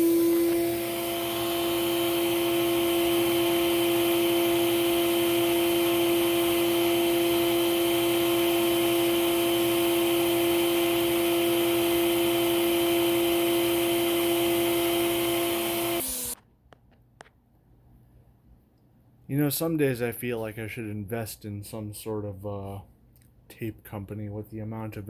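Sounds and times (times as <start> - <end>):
vacuum cleaner motor whining: 0.0 - 16.4.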